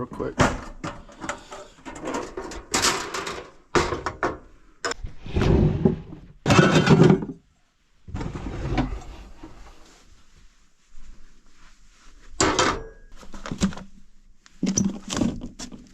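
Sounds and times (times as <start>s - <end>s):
knocks and clatters of handling: 0.0s - 5.0s, 6.0s - 7.5s, 12.2s - 15.9s.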